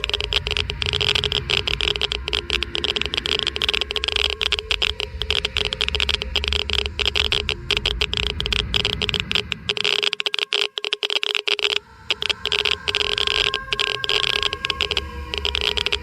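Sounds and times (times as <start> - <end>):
low rumble: 0.0 - 9.9
faint steady hum: 0.0 - 16.0
geiger counter clicking rapidly: 0.0 - 16.0.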